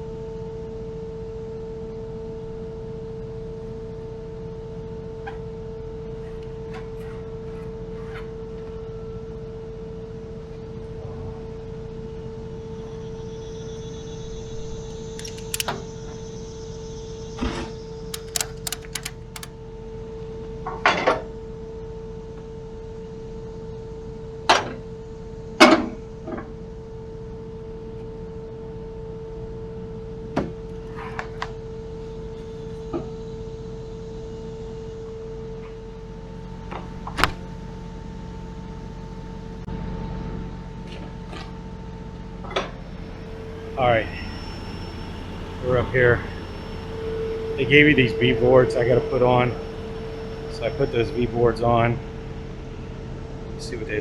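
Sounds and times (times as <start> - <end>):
steady hum: 10.0 - 19.5, 41.6 - 54.0
quick clicks: 15.1 - 15.8, 18.1 - 19.5.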